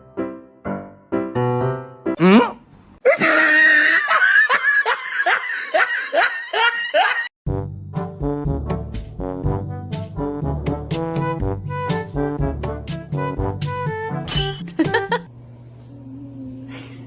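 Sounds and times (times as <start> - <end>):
music: 0.0 - 2.2, 7.5 - 15.3.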